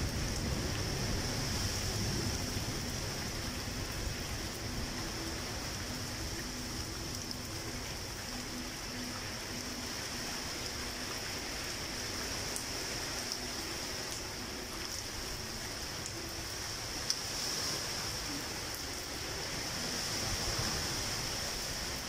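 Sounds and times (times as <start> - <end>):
steady rain hiss: 0.0 - 22.0
water drips ticking: 1.6 - 17.3.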